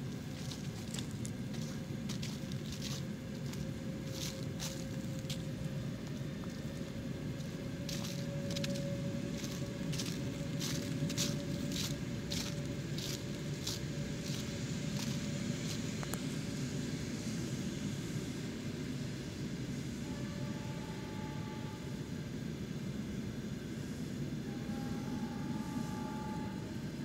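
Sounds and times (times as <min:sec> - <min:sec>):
train coaches rumbling on track: 0:00.0 - 0:27.0
footsteps crunching on frost: 0:00.1 - 0:16.1
faint steady tone: 0:23.9 - 0:27.0.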